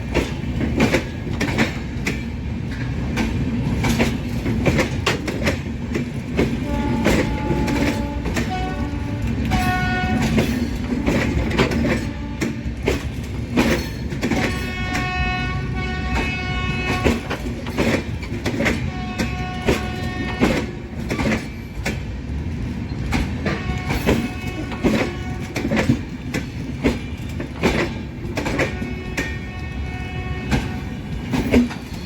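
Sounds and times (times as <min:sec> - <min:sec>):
train wheels clattering over rails: 0:00.0 - 0:32.0
train horn: 0:06.6 - 0:13.0, 0:14.4 - 0:17.4, 0:18.6 - 0:20.9, 0:23.4 - 0:25.8, 0:28.5 - 0:31.4.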